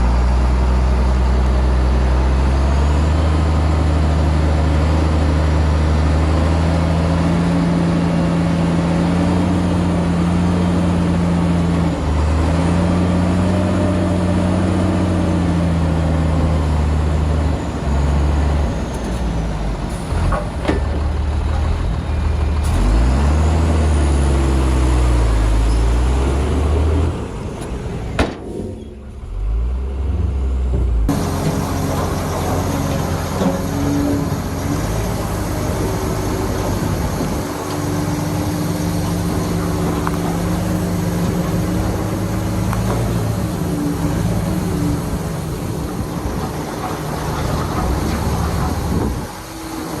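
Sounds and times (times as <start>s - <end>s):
heavy diesel engine under load: 0.0s - 50.0s
sharp knocks: 28.2s - 28.8s.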